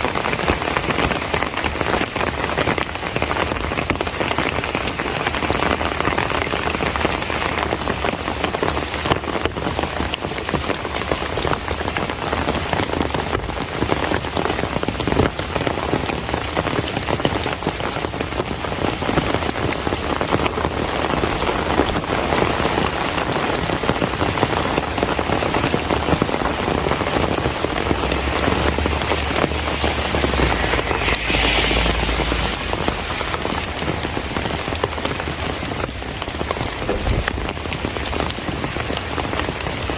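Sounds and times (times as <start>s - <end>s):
rain pattering on surfaces: 0.0s - 39.9s
low rumble: 27.4s - 35.0s.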